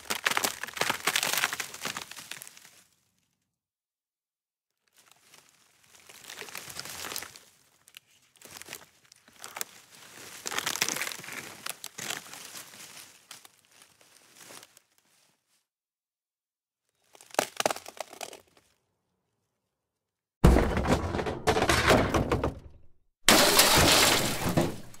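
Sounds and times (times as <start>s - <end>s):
crinkling and crackling: 0.0s - 2.9s, 4.9s - 15.4s, 17.0s - 18.8s.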